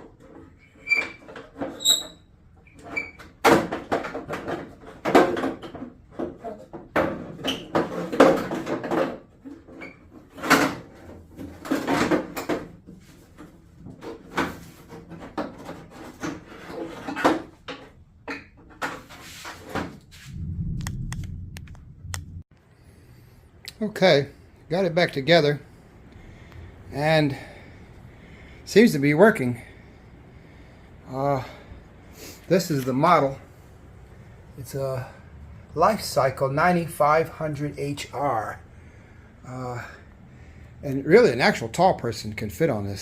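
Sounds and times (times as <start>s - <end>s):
low rumble: 20.2s - 22.5s.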